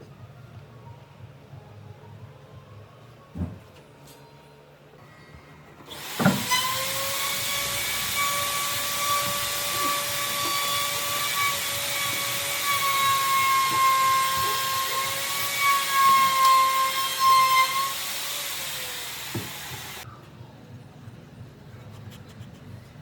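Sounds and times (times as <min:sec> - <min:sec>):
power tool whining: 0:05.9 - 0:20.0.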